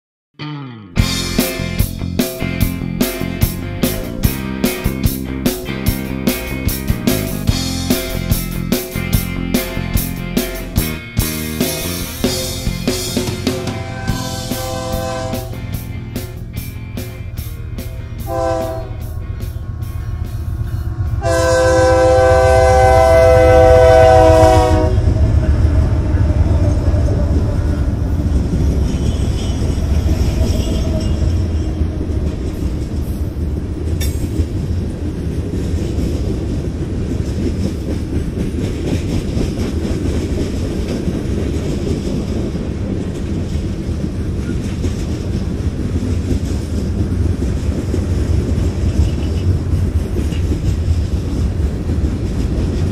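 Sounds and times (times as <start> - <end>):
locomotives rumbling past: 1.0 - 52.9
train wheels on rails: 1.2 - 52.9
locomotive horn blast: 13.4 - 16.1, 17.6 - 25.3, 28.9 - 31.6.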